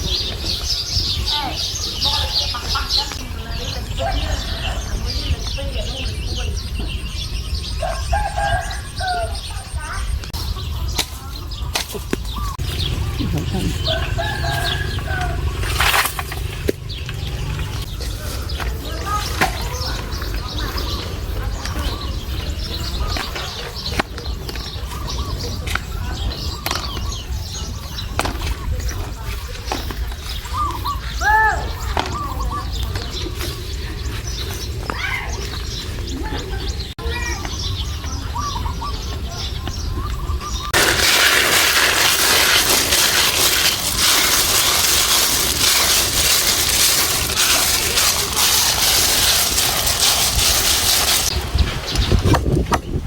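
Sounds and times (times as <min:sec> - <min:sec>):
wind rumble on microphone: 0:00.0 - 0:15.7, 0:50.1 - 0:53.0
small birds chirping: 0:00.0 - 0:53.0
rooster crowing: 0:07.8 - 0:09.4, 0:13.8 - 0:15.5.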